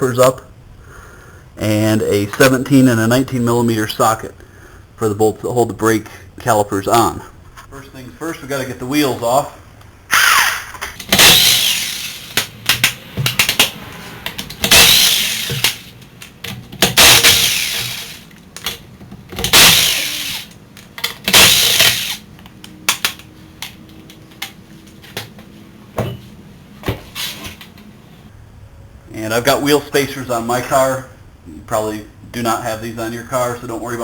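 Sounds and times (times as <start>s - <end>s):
impact wrench zipping lug nuts: 10.1s - 23.8s.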